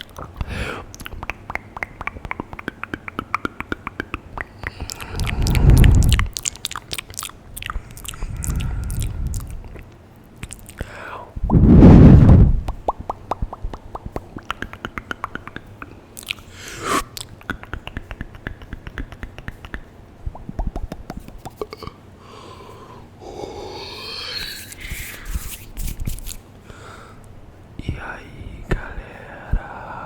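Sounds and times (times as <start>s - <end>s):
wet tongue and lip clicks: 0.0s - 10.9s, 12.6s - 22.0s
breathy whisper-like mouth noise: 4.4s - 9.9s, 21.6s - 25.9s.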